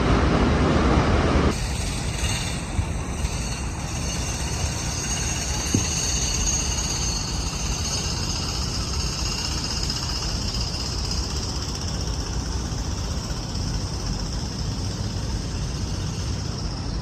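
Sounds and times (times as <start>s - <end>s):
high-pitched whine: 0.0s - 11.0s
city rumble: 0.0s - 17.0s.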